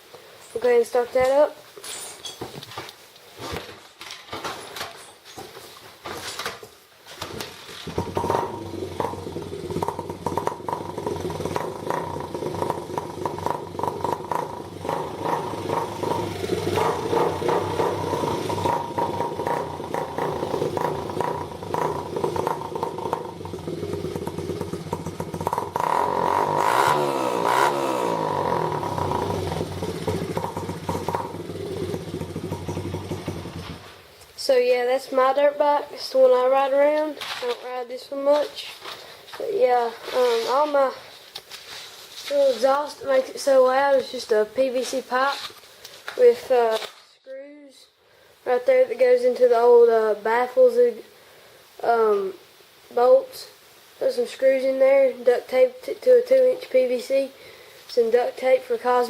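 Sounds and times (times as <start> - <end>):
motorcycle kickstart knocks: 7.2 - 26.0, 29.0 - 33.9
engine revving: 7.9 - 34.0
motorcycle engine idling: 7.9 - 34.0.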